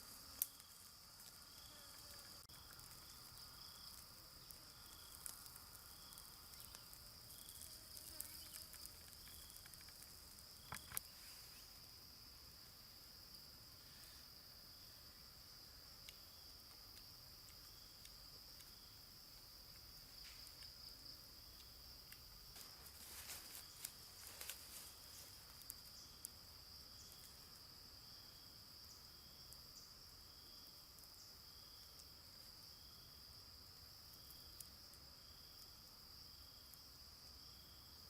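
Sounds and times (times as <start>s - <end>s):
insects droning: 0.0s - 38.0s
small clicks and rustles: 0.3s - 11.1s, 21.6s - 26.4s.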